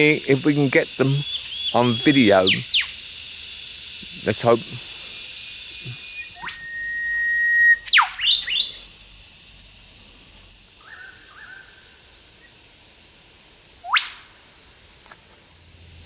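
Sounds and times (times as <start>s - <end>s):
bird whistle ending in whip-crack: 6.2s - 9.0s, 13.2s - 14.3s.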